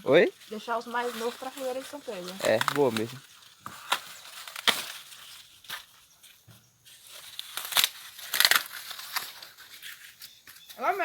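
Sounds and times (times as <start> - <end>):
leaves and husks rustling: 0.0 - 11.0
corn ears snapping off stalks: 1.2 - 5.9, 7.2 - 9.5.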